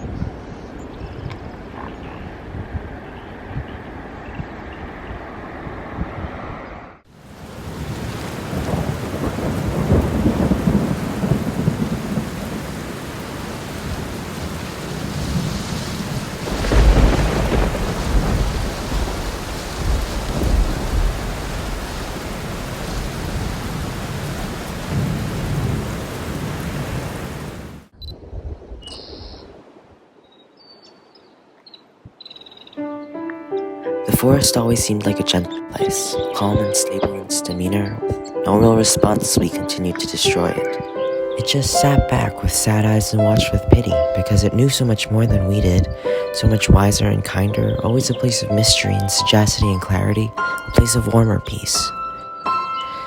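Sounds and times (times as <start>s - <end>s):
rain falling: 7.1s - 30.0s, 34.1s - 52.0s
thunder rumbling: 7.2s - 29.8s.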